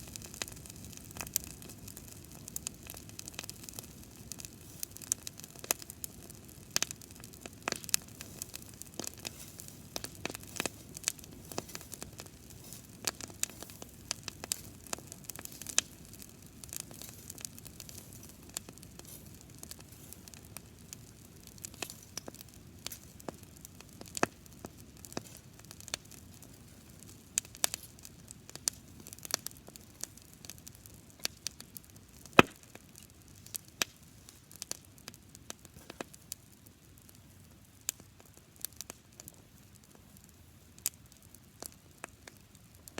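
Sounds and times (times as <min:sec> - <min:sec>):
fire hissing: 0:00.0 - 0:31.4
campfire crackling and popping: 0:00.0 - 0:42.9.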